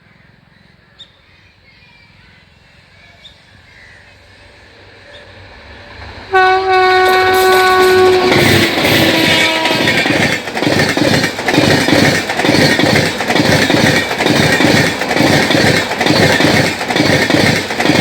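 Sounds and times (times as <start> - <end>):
train rumble and rush: 0.0 - 18.0
locomotive horn blaring: 6.3 - 10.3.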